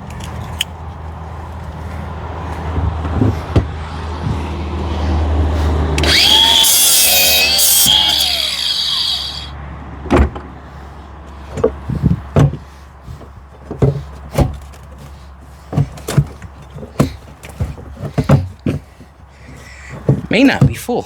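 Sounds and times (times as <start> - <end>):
reciprocating saw cutting: 6.0 - 9.5
irregular knocks and clunks: 15.7 - 20.8.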